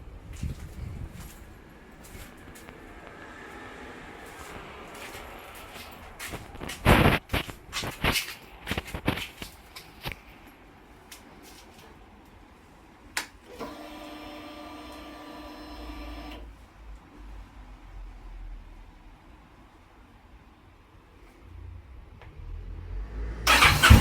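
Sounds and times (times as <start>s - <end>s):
fuel pump electric whine: 23.5s - 24.0s.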